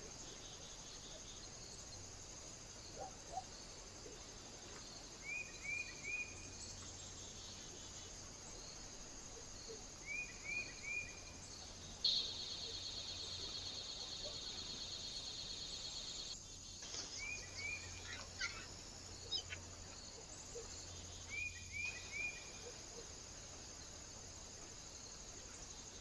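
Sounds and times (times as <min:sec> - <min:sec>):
steady high hiss: 0:00.0 - 0:26.0
small bird chirping: 0:12.0 - 0:16.4, 0:17.2 - 0:19.6.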